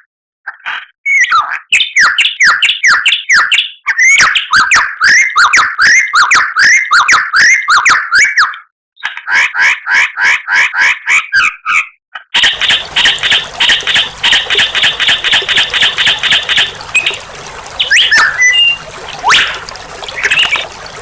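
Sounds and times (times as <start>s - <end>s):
bird singing sharp whistled notes: 17.8s - 19.6s.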